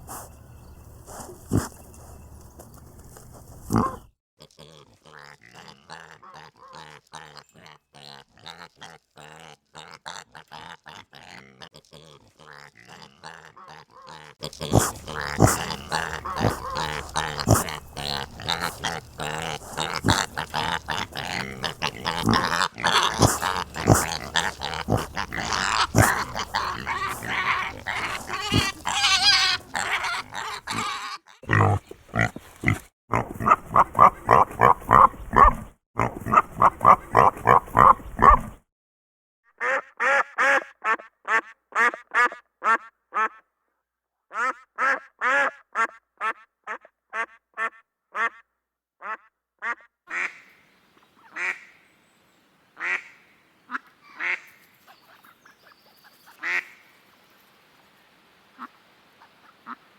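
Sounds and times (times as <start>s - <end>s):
pigs grunting and squealing: 0.0s - 38.6s
ducks quacking: 12.9s - 35.2s, 49.1s - 50.6s, 51.2s - 51.8s, 52.8s - 55.5s, 56.2s - 56.9s.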